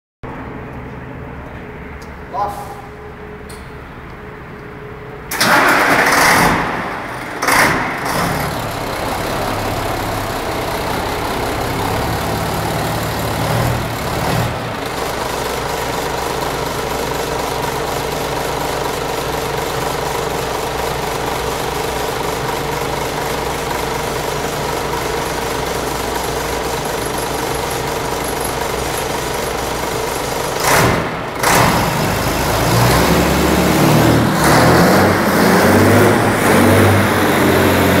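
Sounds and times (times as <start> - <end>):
diesel truck engine idling: 0.3 - 38.0
engine revving bursts: 5.3 - 14.8, 30.6 - 38.0.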